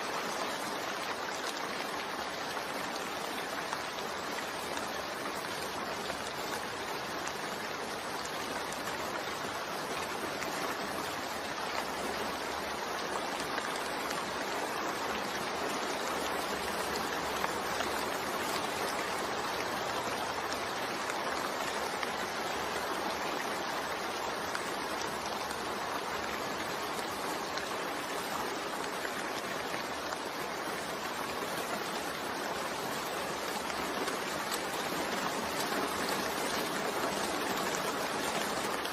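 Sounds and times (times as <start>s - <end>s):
continuous rain: 0.0s - 38.9s.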